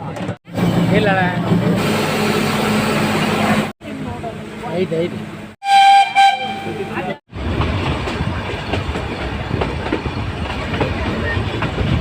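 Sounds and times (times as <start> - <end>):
train rumbling on rails: 0.0 - 12.0
train horn blast: 5.6 - 7.0
rail clicks: 7.4 - 12.0.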